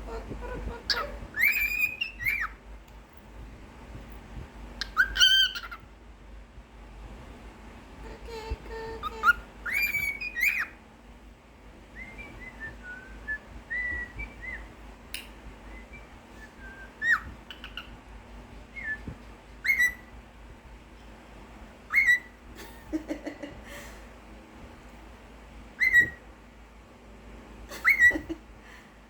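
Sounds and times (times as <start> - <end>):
bird whistling a song: 0.9 - 2.6, 4.8 - 5.8, 9.0 - 10.8, 12.0 - 14.8, 15.7 - 18.0, 18.7 - 20.1, 21.9 - 22.4, 25.8 - 26.2, 27.8 - 28.3.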